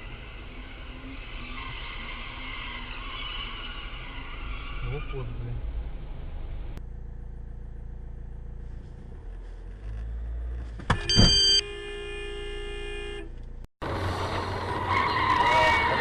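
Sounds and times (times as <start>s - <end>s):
car engine and road rumble: 0.0s - 16.0s
car horn: 10.8s - 13.5s, 14.9s - 16.0s.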